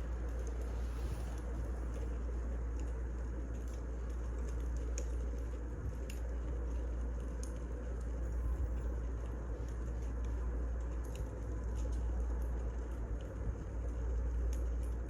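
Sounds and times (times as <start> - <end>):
wood fire rumble and hiss: 0.0 - 15.0.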